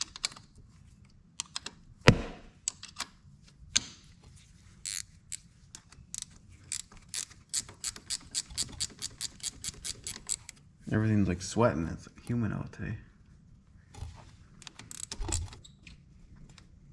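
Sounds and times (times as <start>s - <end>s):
ratchet wrench clicking: 4.9s - 5.4s, 6.1s - 10.5s, 14.9s - 15.5s.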